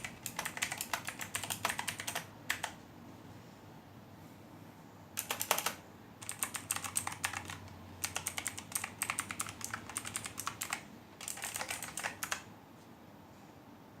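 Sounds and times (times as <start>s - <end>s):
clicky keyboard typing: 0.0s - 2.8s, 5.2s - 12.5s.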